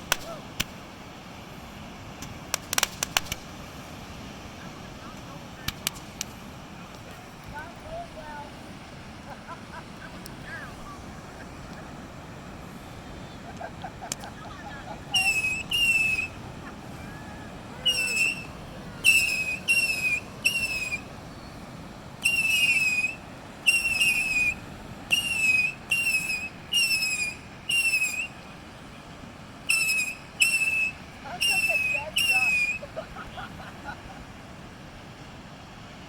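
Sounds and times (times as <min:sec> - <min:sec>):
high whistled notes: 0:15.1 - 0:16.4, 0:17.0 - 0:21.6, 0:22.2 - 0:28.4, 0:29.7 - 0:32.9.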